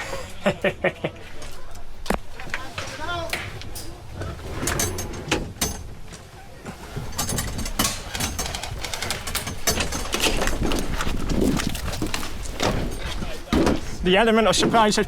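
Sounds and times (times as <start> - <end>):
irregular knocks and clicks: 7.0 - 13.9.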